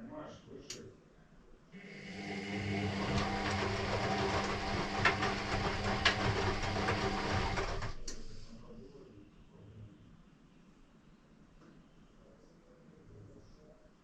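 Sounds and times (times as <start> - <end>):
washing machine humming: 1.8 - 9.0
washing machine click: 2.4 - 8.6.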